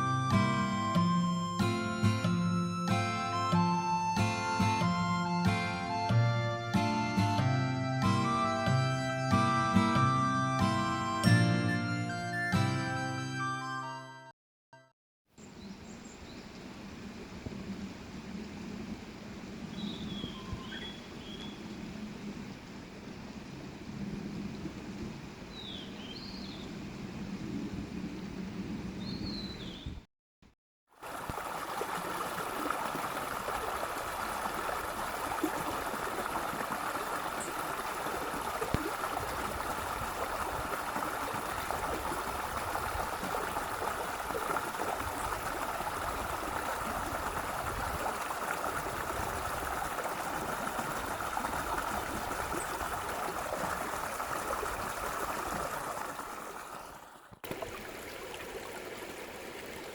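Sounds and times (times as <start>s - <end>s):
high bird chirps: 19.8s - 21.5s
stream running: 30.9s - 59.9s.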